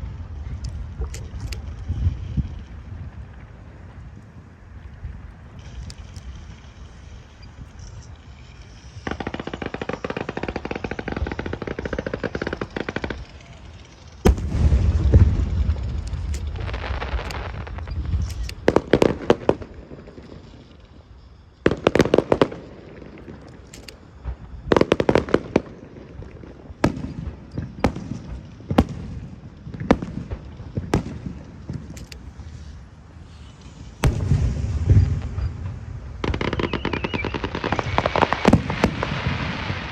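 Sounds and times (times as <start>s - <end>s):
fireworks crackling: 0.0s - 39.9s
sharp fireworks bangs: 5.5s - 39.9s
fireworks boom: 14.2s - 19.8s, 33.6s - 39.9s.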